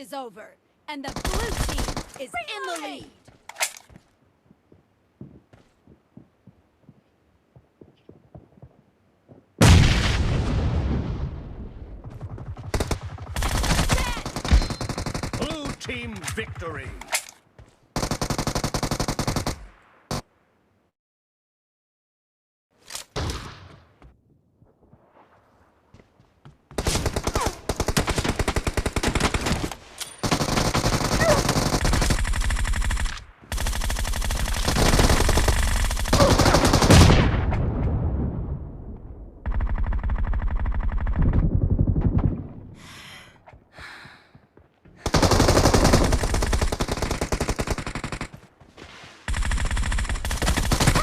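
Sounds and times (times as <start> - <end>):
video game automatic gunfire: 1.0 - 2.1, 12.0 - 15.8, 18.0 - 20.2, 26.8 - 37.2, 39.4 - 42.2, 45.0 - 48.4, 49.3 - 51.0.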